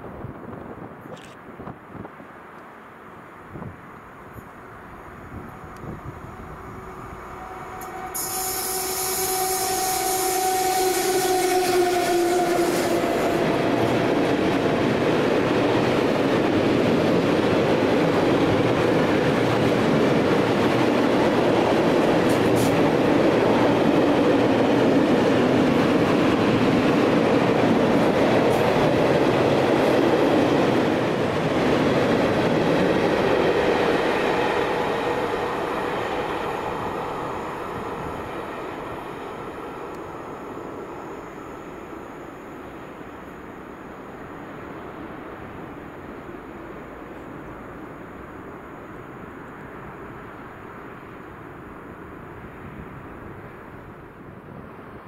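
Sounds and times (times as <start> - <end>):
train wheels rolling on rail: 3.4 - 55.0.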